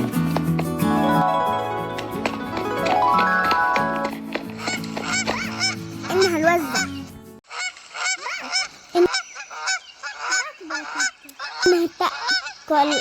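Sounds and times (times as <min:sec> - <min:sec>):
music: 0:00.0 - 0:07.4
geese honking: 0:01.4 - 0:13.0.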